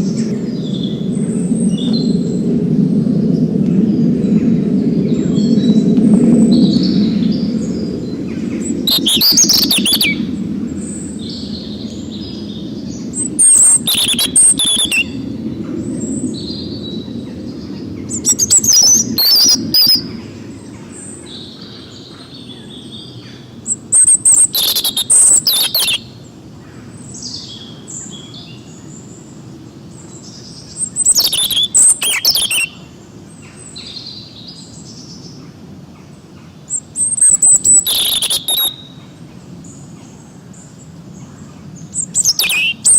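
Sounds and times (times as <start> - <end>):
songbirds singing and chirping: 0.0 - 2.6, 3.2 - 42.9
low rumble: 0.0 - 20.7.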